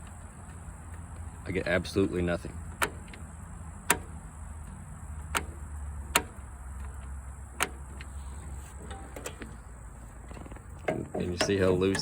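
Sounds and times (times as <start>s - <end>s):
ignition key clicks: 2.8s - 4.2s, 5.3s - 8.1s.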